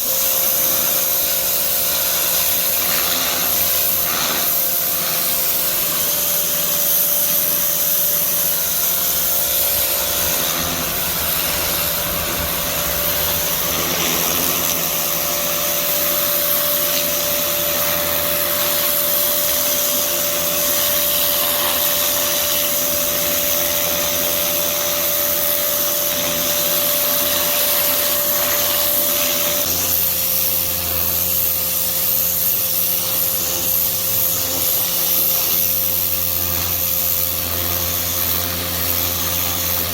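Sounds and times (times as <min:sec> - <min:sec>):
water jet hissing: 0:00.0 - 0:30.4
pressure washer motor humming: 0:00.0 - 0:39.9.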